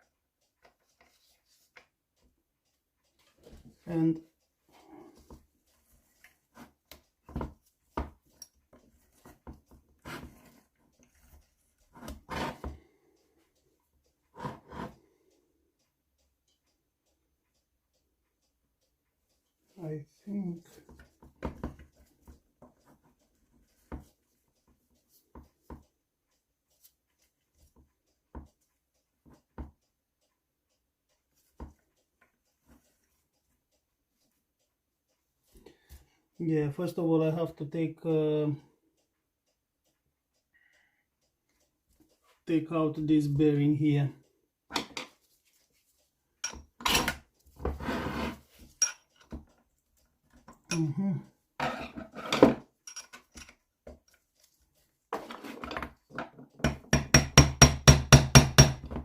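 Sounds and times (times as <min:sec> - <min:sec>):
metal tools clicking and knocking: 0:46.4 - 0:47.3, 0:48.6 - 0:49.6, 0:51.6 - 0:54.2
metal tool scraping: 0:46.4 - 0:49.0, 0:51.6 - 0:52.5.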